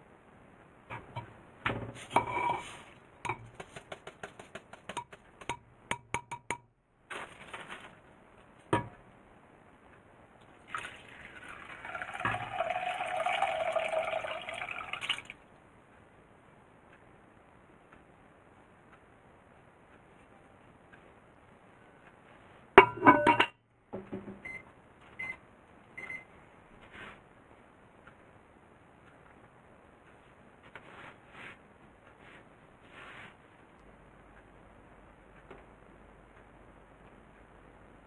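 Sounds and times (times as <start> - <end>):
liquid pouring into a pot: 10.6 - 15.4.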